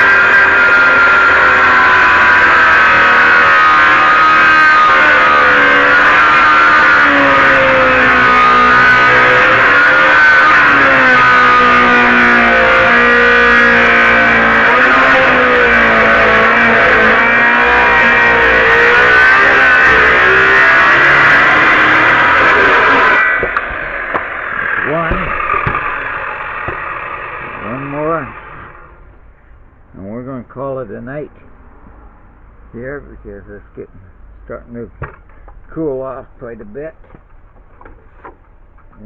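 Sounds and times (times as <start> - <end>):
circular saw cutting wood: 0.0 - 29.1.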